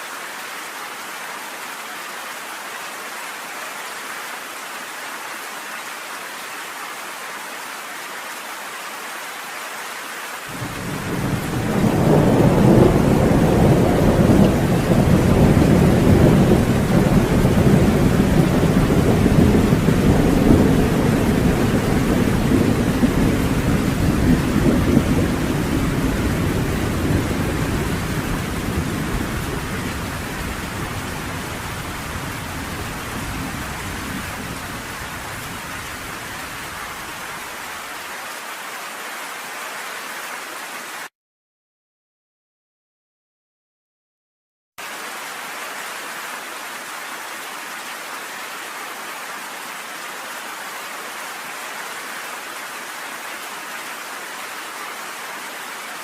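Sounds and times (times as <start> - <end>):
rain pattering on porch: 10.4 - 38.4
thunder rumbling: 10.5 - 37.2.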